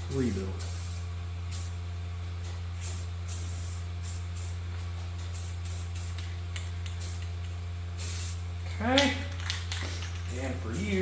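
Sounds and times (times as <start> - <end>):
steady low hum: 0.0 - 11.0
spray paint can hissing: 0.6 - 1.8, 2.8 - 4.6, 5.2 - 8.4, 9.4 - 11.0.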